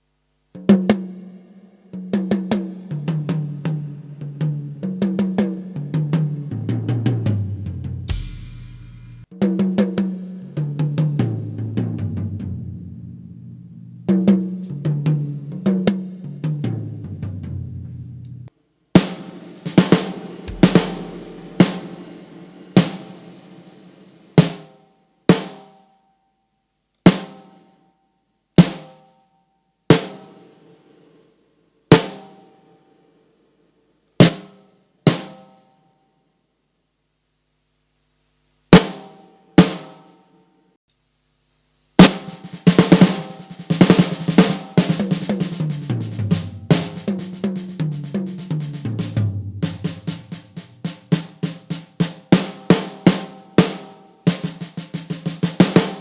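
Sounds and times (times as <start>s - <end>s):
tom drum hits: 8.0s - 9.3s, 19.0s - 24.2s, 45.0s - 48.0s, 48.9s - 51.1s
sharp drum hits with ringing tails: 8.1s - 9.4s, 19.0s - 24.6s.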